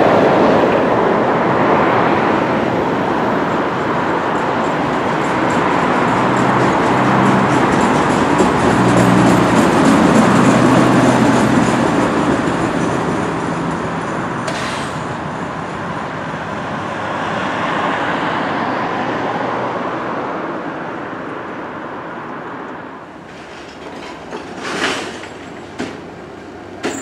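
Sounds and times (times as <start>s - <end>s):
train running on rails: 0.0s - 27.0s.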